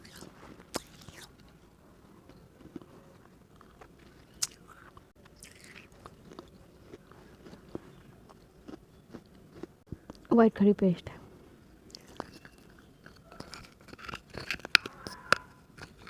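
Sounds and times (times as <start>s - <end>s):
clay being bitten and crunched: 11.9s - 16.0s.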